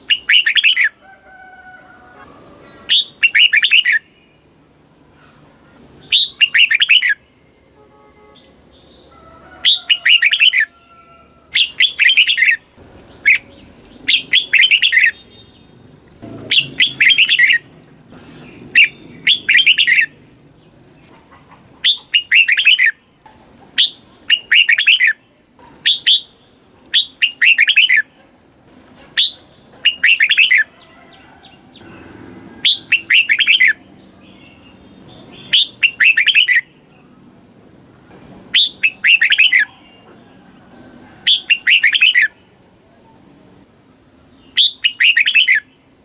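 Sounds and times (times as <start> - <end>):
bird singing warbled phrase: 0.0 - 1.0, 2.8 - 4.5, 5.1 - 7.4, 11.5 - 21.0, 21.8 - 23.0, 23.8 - 26.3, 29.2 - 30.7, 31.7 - 37.2, 38.5 - 40.1, 44.4 - 45.9.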